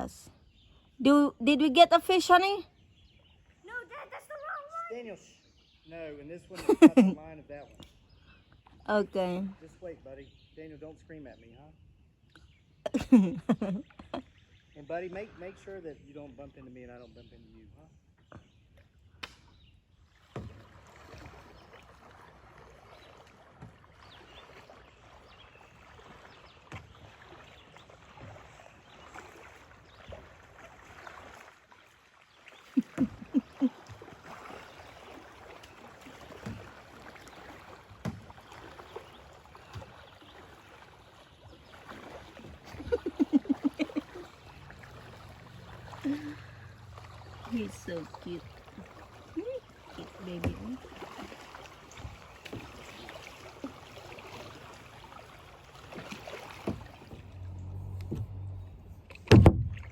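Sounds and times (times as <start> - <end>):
river water rushing: 41.7 - 59.0
knocks on kayak: 59.2 - 59.9.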